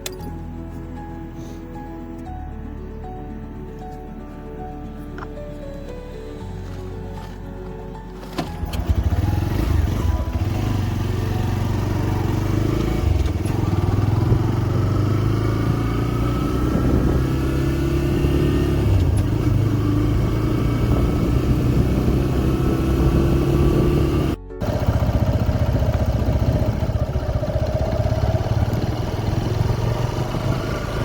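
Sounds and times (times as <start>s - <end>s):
motorcycle engine running: 8.4s - 31.0s.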